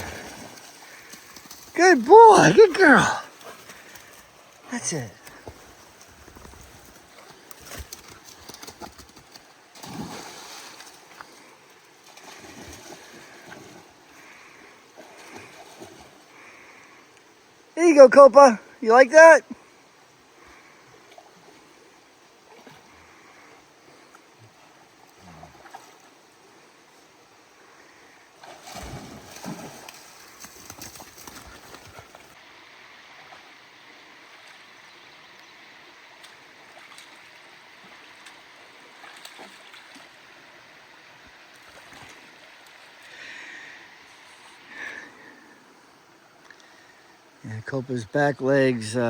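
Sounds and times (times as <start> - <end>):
dog splashing in a brook: 0.0 - 14.4, 28.4 - 32.4, 36.2 - 43.2
surge of water: 28.4 - 32.0.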